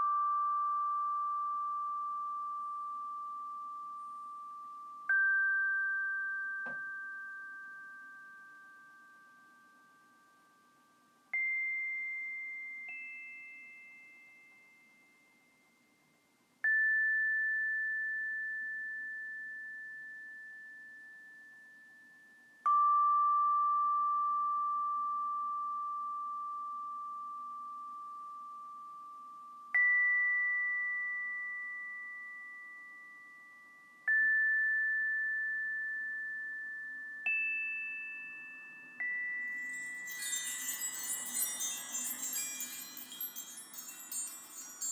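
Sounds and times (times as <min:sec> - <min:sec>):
high chime notes: 0:37.3 - 0:44.9.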